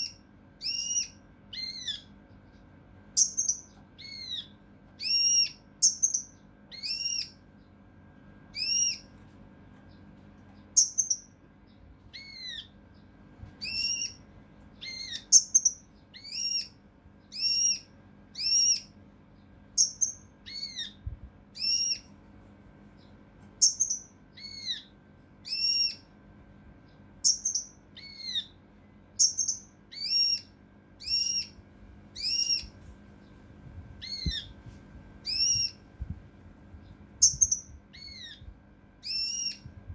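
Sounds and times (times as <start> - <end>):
bird calling sharp whistled notes: 0.0 - 2.1, 3.2 - 7.4, 8.6 - 9.1, 10.8 - 11.3, 13.6 - 14.2, 14.8 - 16.7, 17.3 - 18.9, 19.8 - 21.0, 21.6 - 22.1, 23.6 - 26.0, 27.2 - 28.5, 29.2 - 31.6, 32.2 - 32.7, 34.0 - 34.5, 35.2 - 35.8, 37.2 - 38.4, 39.0 - 39.6.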